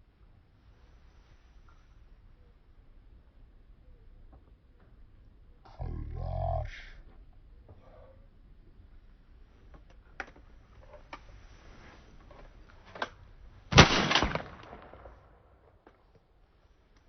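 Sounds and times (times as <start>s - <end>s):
shotgun shots: 13.7s - 15.3s.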